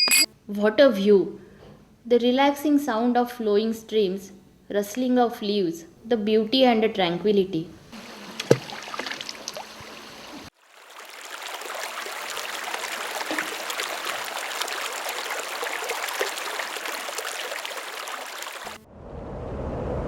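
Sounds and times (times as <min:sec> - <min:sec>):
stream of flowing water: 0:07.9 - 0:18.8.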